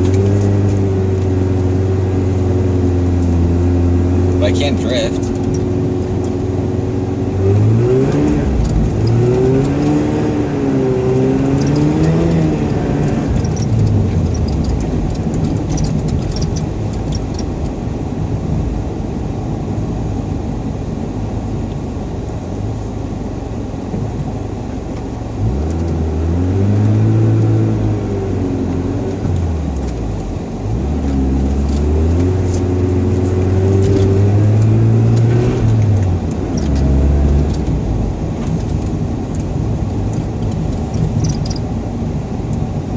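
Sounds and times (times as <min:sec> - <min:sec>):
rotary engine revving: 0:07.4 - 0:17.3, 0:30.7 - 0:41.7.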